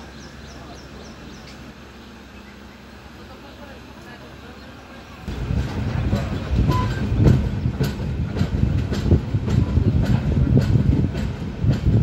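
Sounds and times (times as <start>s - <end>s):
train coaches rumbling: 0.0s - 12.0s
wheels clacking over rail joints: 5.1s - 12.0s.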